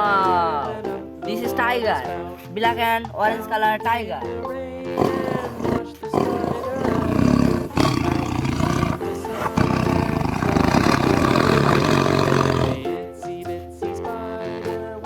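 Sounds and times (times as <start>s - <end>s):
background music: 0.0s - 15.0s
tiger roaring and growling: 5.0s - 12.8s.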